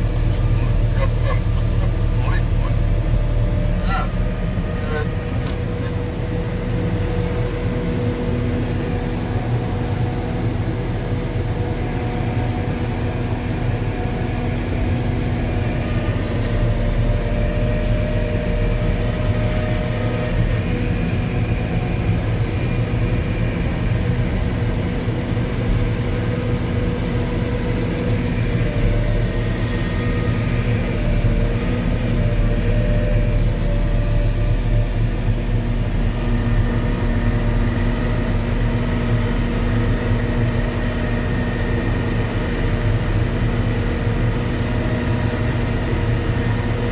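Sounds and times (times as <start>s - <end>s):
diesel engine drone: 0.0s - 46.9s.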